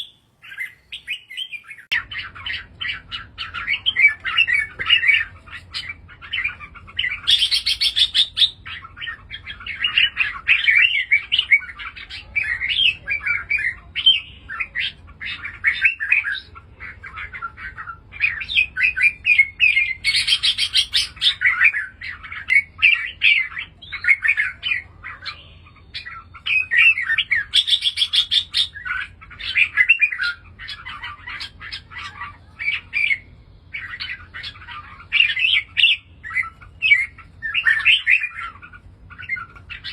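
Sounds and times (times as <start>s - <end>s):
bird singing chirpy phrases: 0.0s - 39.9s.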